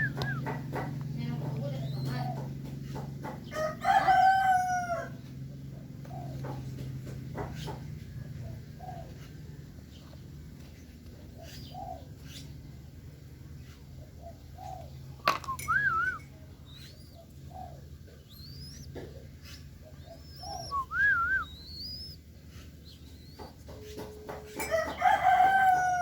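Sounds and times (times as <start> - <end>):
bird warbling chirps: 0.0 - 2.5, 13.6 - 25.8
doves cooing: 0.0 - 26.0.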